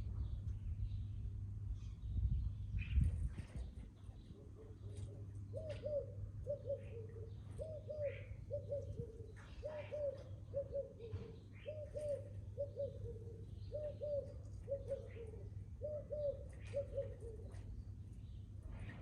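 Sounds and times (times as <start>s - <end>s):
small birds chirping: 0.0s - 19.0s
steady low hum: 0.0s - 19.0s
dove cooing: 4.3s - 17.7s.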